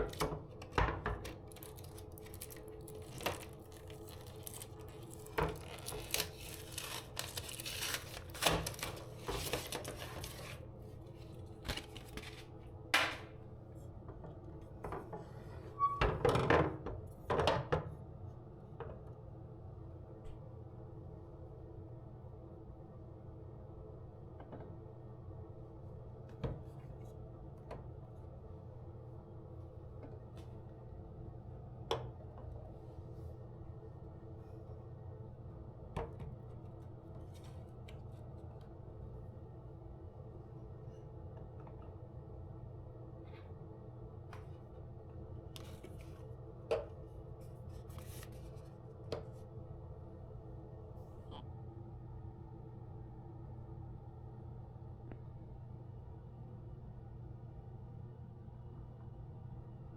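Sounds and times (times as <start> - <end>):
rustling of small objects: 1.3 - 10.6
steady low hum: 18.0 - 59.9.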